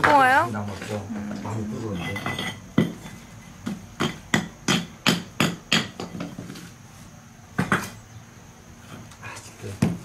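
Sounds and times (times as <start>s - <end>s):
sharp knocks of hard objects: 2.2s - 6.6s, 7.6s - 8.0s, 9.8s - 10.0s.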